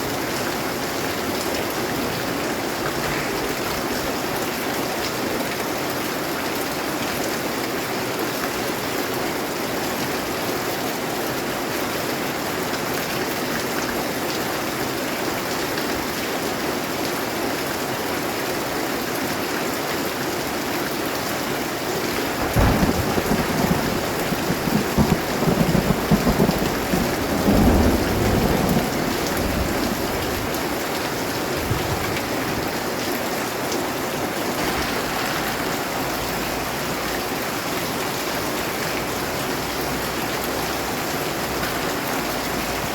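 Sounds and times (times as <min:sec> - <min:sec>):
thunder rumbling: 0:02.2 - 0:04.6, 0:22.2 - 0:32.7, 0:34.5 - 0:38.6
rain hissing: 0:21.9 - 0:39.4.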